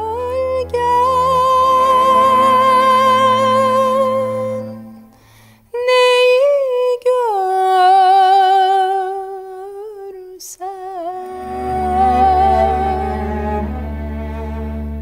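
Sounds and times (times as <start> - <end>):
woman singing unaccompanied: 0.0 - 5.0, 5.7 - 13.9.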